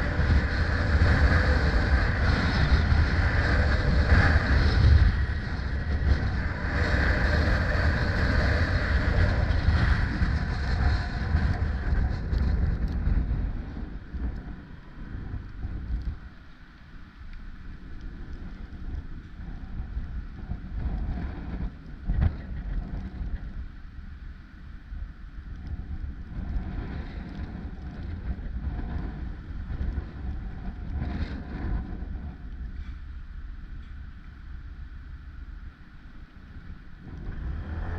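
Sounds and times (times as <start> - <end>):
engine and road rumble: 0.0 - 37.9
wind buffeting microphone: 0.0 - 37.9.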